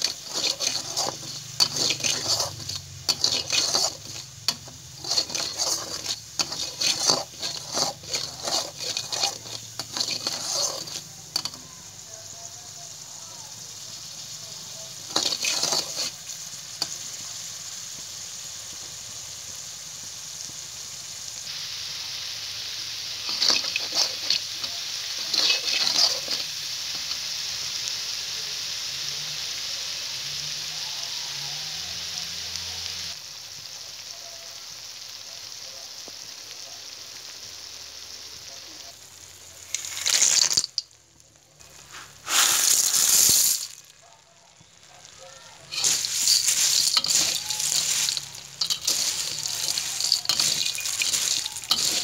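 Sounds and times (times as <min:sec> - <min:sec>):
spatula scraping and stirring: 0:00.0 - 0:11.7, 0:15.0 - 0:17.0, 0:23.2 - 0:27.1, 0:39.6 - 0:40.9, 0:41.6 - 0:44.0, 0:45.6 - 0:52.0
chilli paste sizzling in oil: 0:00.0 - 0:52.0.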